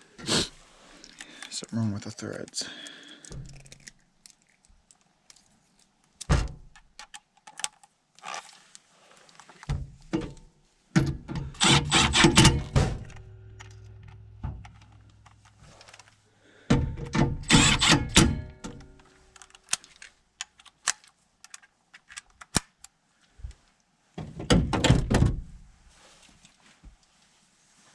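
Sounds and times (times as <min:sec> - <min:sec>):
low steady hum: 0:09.8 - 0:20.1.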